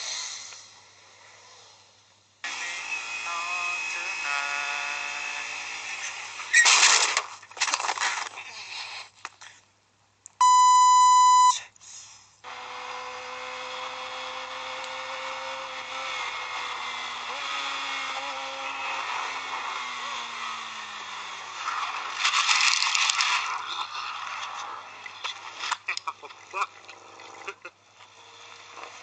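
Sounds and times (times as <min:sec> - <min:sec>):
electronic beep: 0:10.4 - 0:11.6.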